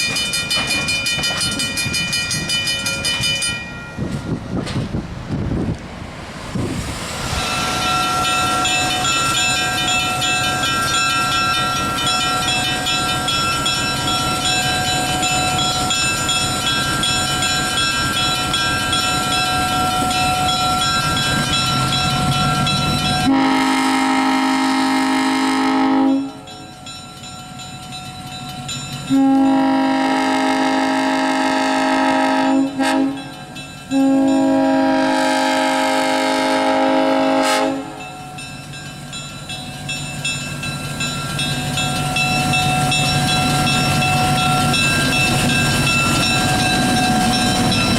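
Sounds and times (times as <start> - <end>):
train running: 0.0 - 47.9
train horn blasts: 23.2 - 26.5, 29.1 - 33.3, 33.9 - 38.0.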